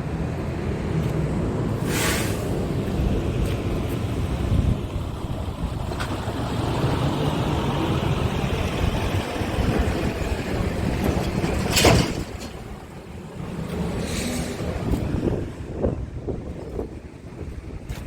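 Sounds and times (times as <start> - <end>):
diesel engine idling: 2.4 - 11.7
wind on microphone: 2.9 - 12.4, 14.0 - 18.0.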